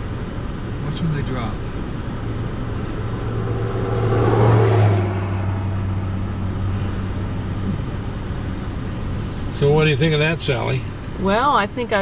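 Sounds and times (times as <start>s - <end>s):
low engine hum: 0.0s - 12.0s
car passing by: 2.1s - 9.6s.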